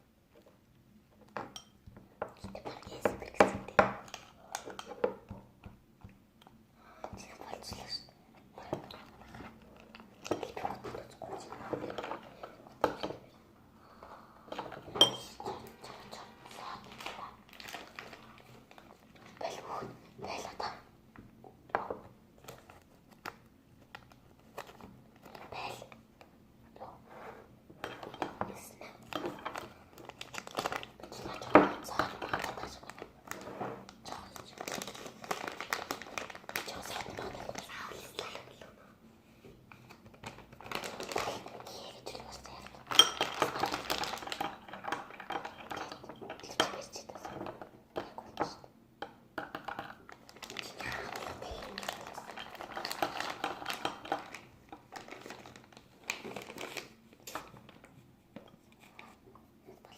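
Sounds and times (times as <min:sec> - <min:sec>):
crinkling and clicking from handling: 0:16.8 - 0:19.4, 0:21.8 - 0:26.3, 0:27.8 - 0:37.7, 0:39.7 - 0:41.8, 0:42.5 - 0:59.5.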